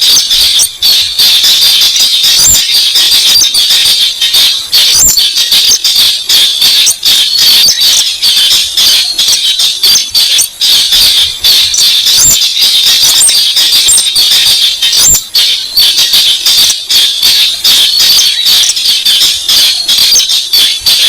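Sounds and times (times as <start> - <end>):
steady high-pitched hiss: 0.0 - 21.0
rapid dry bird clicking: 4.8 - 15.3, 16.0 - 21.0.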